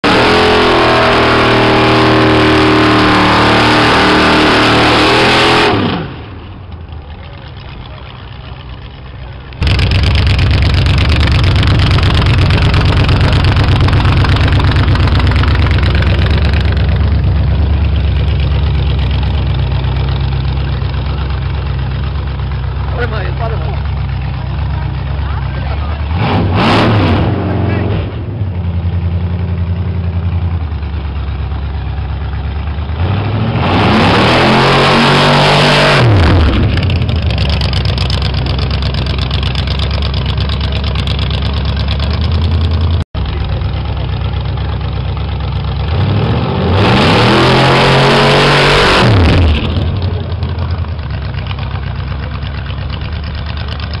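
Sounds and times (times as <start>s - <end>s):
dragster engine idling and revving: 0.0s - 54.0s.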